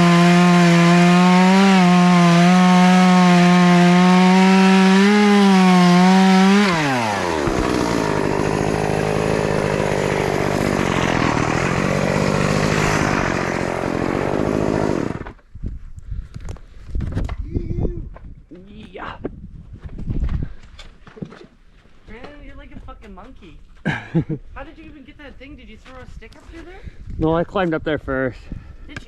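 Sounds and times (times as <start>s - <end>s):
chainsaw revving and idling: 0.0s - 15.4s.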